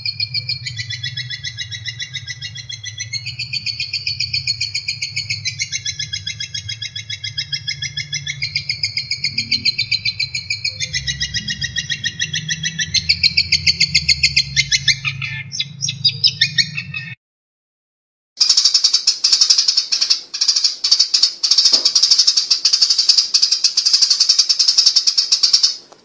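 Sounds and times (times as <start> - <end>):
songbird singing rapid trills: 0.0 - 16.8, 18.4 - 25.8
low hum: 0.0 - 17.0.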